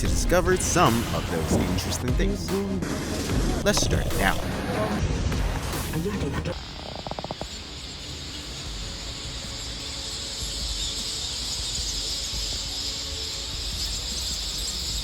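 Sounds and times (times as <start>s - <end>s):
chirring chorus of small animals: 6.5s - 15.0s.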